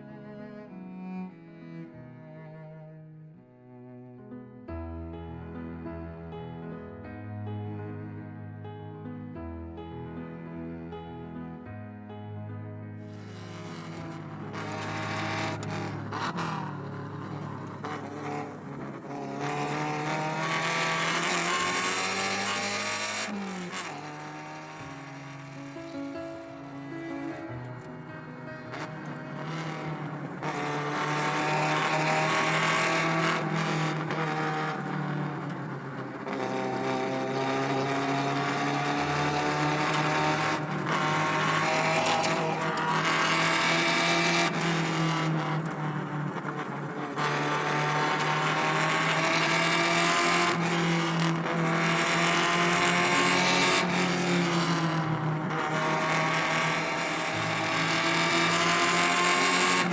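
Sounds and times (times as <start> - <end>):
car engine accelerating through gears: 13.1 - 59.9.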